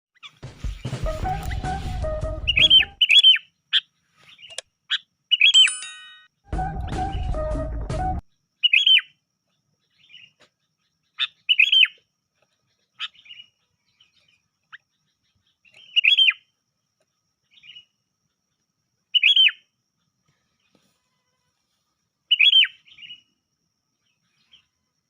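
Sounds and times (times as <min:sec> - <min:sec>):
bird calls: 0:00.2 - 0:05.7, 0:08.6 - 0:09.2, 0:09.8 - 0:16.5, 0:19.1 - 0:19.6, 0:22.3 - 0:23.3.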